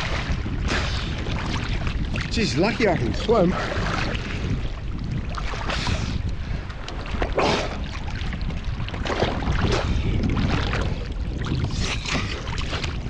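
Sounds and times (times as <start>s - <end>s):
wind rumble on microphone: 0.0s - 13.0s
water splashing around swimmer: 6.9s - 13.0s.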